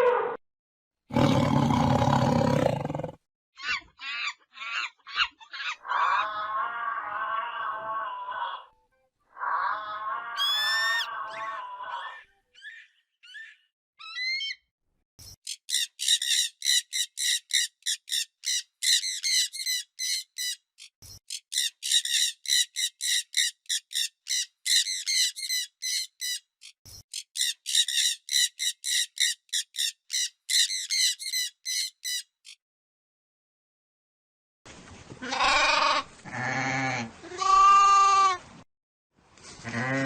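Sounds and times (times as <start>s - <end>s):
bird chirping: 15.2s - 32.6s.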